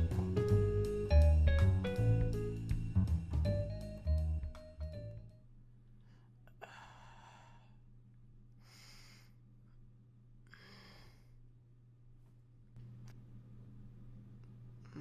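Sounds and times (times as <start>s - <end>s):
faint low hum: 0.0s - 15.0s
person sighing heavily: 6.5s - 7.7s.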